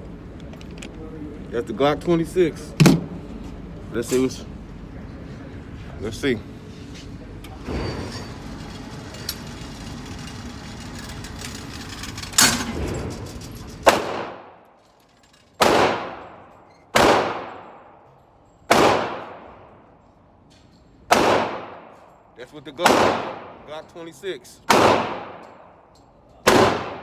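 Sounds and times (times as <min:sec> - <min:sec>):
steady rumble: 0:00.0 - 0:20.4
gunshots with ringing tail: 0:13.9 - 0:14.6, 0:15.6 - 0:18.1, 0:18.7 - 0:19.7, 0:21.1 - 0:22.0, 0:22.8 - 0:23.7, 0:24.7 - 0:25.8, 0:26.4 - 0:27.0.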